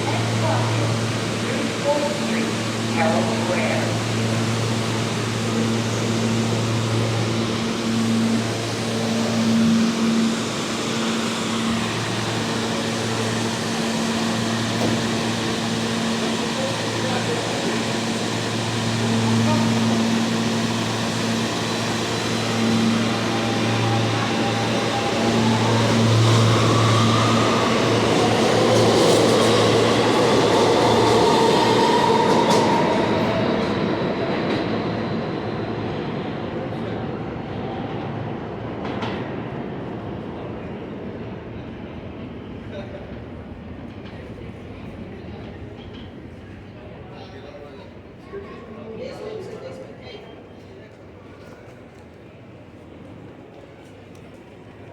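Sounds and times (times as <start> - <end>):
train mechanical hum: 0.0 - 54.9.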